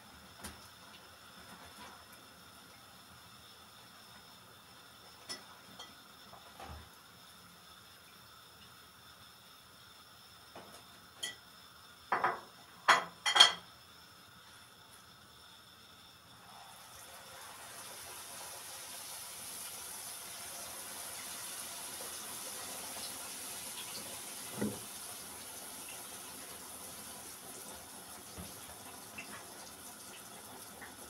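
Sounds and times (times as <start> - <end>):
tap water running into sink: 16.7 - 31.0.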